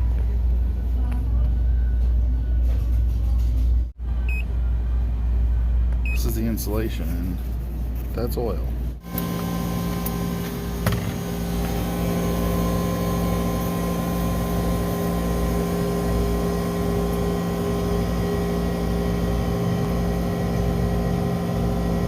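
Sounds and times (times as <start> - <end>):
machine motor humming: 9.0 - 22.0.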